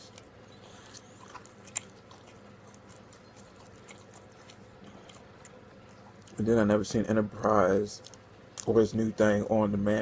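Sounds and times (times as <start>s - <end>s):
chewing mouth clicks: 0.0s - 6.4s
low steady hum: 0.0s - 10.0s.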